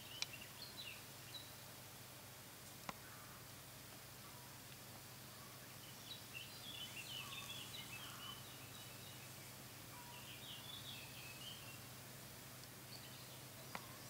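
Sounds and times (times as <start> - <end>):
low hum and hiss: 0.0 - 14.0
distant bird chirps: 5.2 - 12.0, 12.8 - 14.0.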